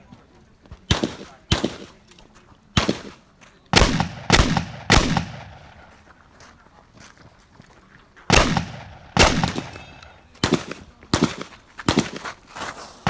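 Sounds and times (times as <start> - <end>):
shotgun shots echoing: 0.9 - 2.1, 2.8 - 6.0, 8.3 - 12.4.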